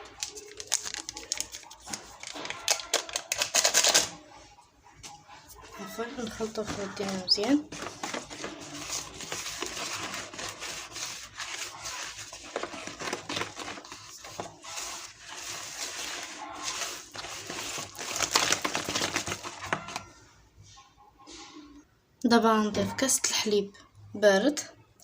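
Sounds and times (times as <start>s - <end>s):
utensil scraping batter in bowl: 6.2s - 18.2s.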